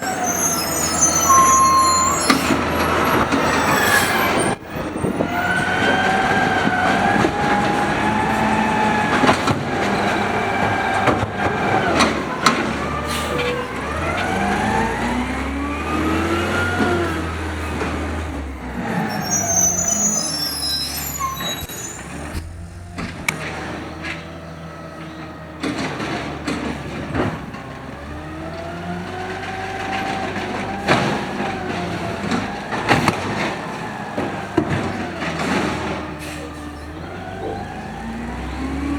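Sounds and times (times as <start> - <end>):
carts banging against hopper: 0.0 - 19.7, 22.3 - 38.9
garbage truck engine revving: 0.0 - 38.9.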